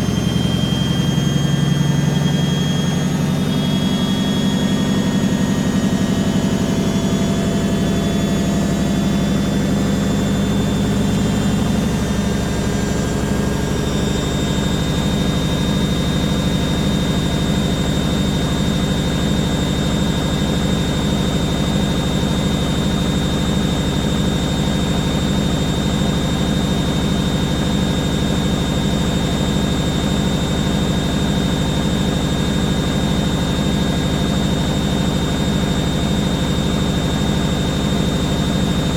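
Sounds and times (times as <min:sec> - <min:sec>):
washing machine spinning: 0:00.0 - 0:38.9.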